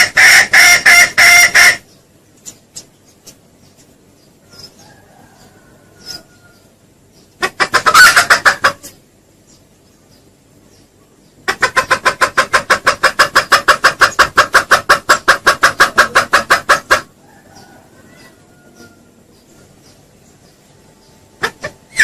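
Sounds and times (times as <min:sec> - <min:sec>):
junglefowl clucking: 0:00.0 - 0:03.4, 0:04.4 - 0:09.1, 0:11.4 - 0:19.9, 0:21.4 - 0:22.0.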